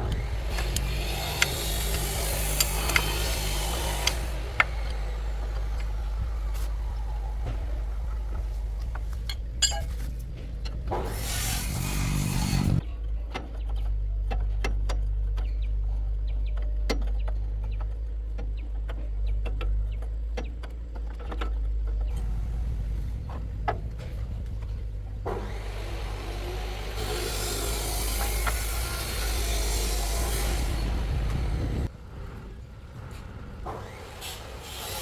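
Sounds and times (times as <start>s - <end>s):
hissing mechanical noise: 0.0s - 12.8s, 22.1s - 35.0s
steady low hum: 0.0s - 14.2s, 17.2s - 34.1s.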